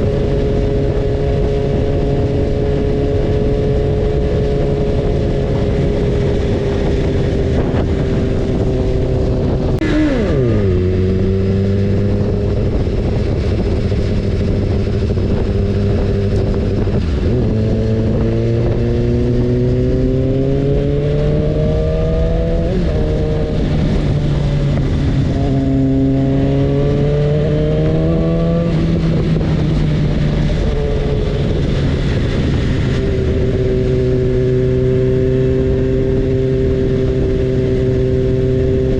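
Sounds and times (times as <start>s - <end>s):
motorcycle engine revving: 0.0s - 38.9s
steady rushing noise: 0.0s - 38.9s.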